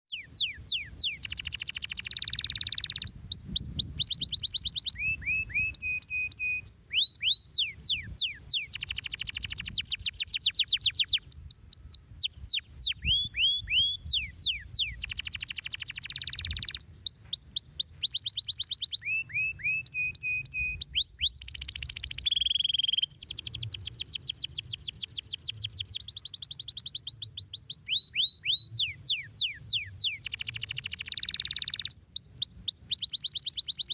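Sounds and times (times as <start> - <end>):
canary singing: 0.1 - 33.9.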